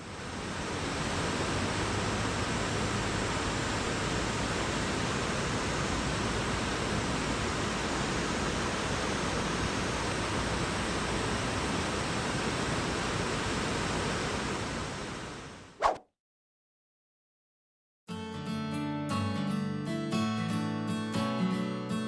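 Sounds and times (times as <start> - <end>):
steady rushing noise: 15.8 - 16.0.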